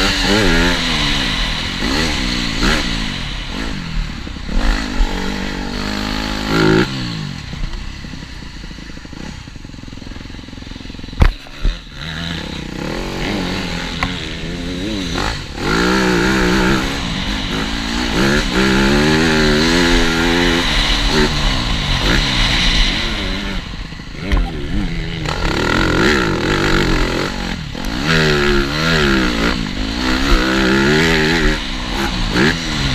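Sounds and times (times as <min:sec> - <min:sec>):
motocross bike engine revving: 0:00.0 - 0:32.9
sharp thumps: 0:20.6 - 0:27.1.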